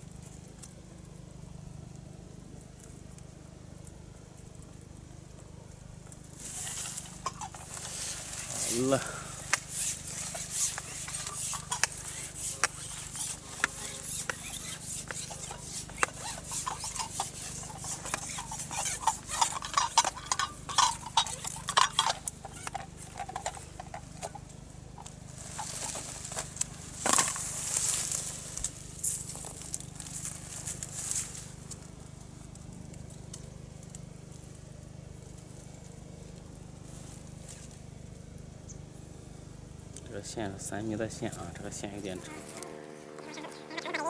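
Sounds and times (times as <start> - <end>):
small objects clicking and clinking: 15.2 - 24.4.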